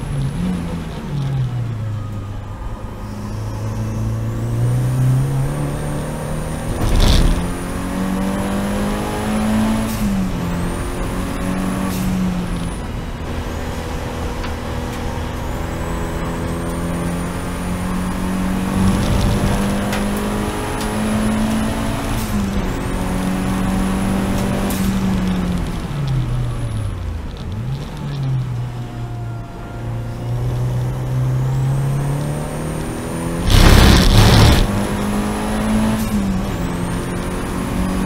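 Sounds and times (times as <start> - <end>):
race car engine at high revs: 3.6 - 25.9, 30.8 - 38.0.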